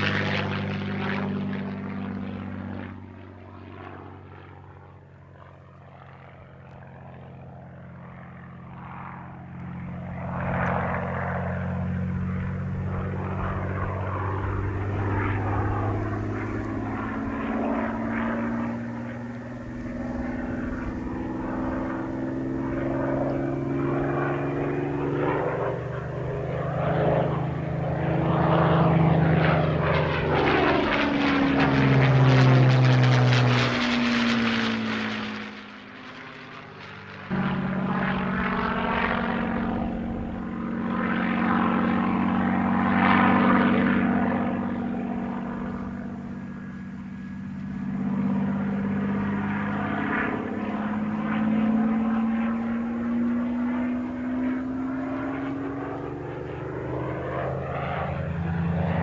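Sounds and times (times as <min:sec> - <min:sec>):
propeller aircraft flying past: 0:00.0 - 0:59.0.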